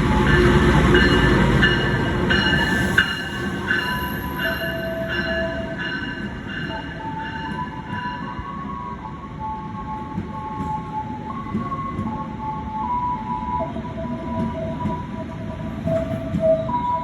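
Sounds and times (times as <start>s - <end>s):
train cars rumbling past: 0.0s - 9.3s.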